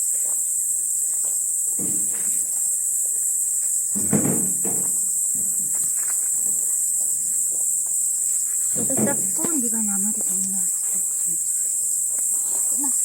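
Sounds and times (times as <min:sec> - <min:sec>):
crickets chirring: 0:00.0 - 0:13.0
dull knocks and rustles: 0:01.6 - 0:02.7, 0:03.6 - 0:11.4.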